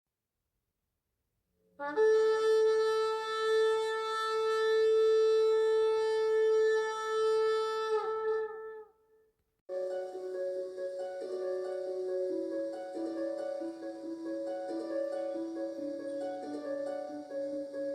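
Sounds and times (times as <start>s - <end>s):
shofar blast: 1.8s - 8.8s
soft music: 9.7s - 17.9s.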